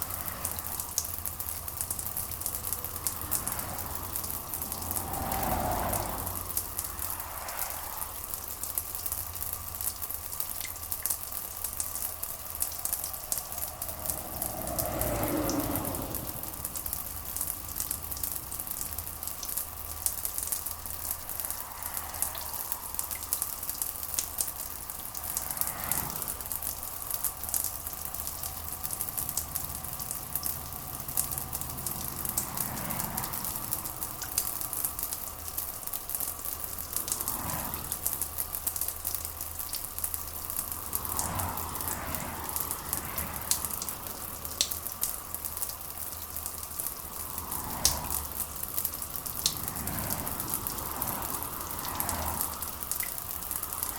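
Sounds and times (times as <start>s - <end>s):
rain pattering: 0.0s - 53.9s.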